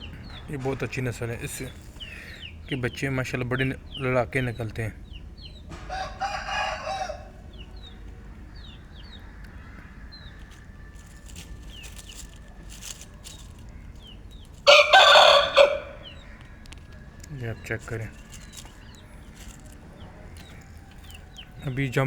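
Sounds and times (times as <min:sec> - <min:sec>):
rooster crowing: 0:05.7 - 0:07.5, 0:09.2 - 0:13.7, 0:14.6 - 0:16.3, 0:18.1 - 0:21.7.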